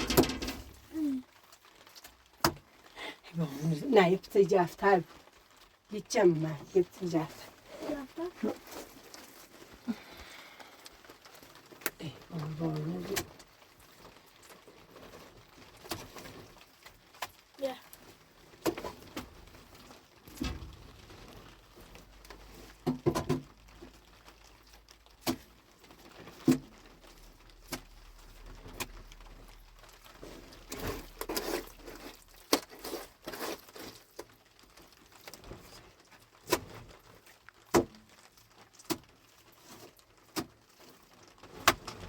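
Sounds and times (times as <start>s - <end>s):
objects knocking and clicking: 0.0s - 0.9s, 22.7s - 24.0s
rustling: 0.0s - 42.0s.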